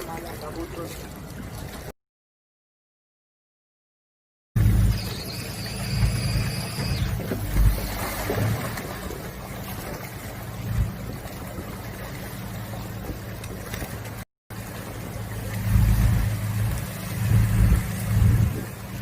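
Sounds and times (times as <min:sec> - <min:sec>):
boat engine humming: 0:00.0 - 0:01.9, 0:04.6 - 0:19.0
water noise: 0:00.0 - 0:02.0, 0:04.6 - 0:19.0
wind: 0:00.0 - 0:02.0, 0:04.6 - 0:19.0
low rumbles: 0:04.6 - 0:19.0.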